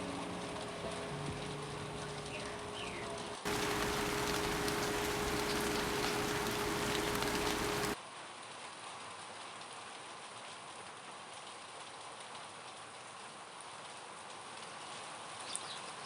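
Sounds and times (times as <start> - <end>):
rain falling: 0.0 - 8.0
steady low hum: 0.0 - 8.0.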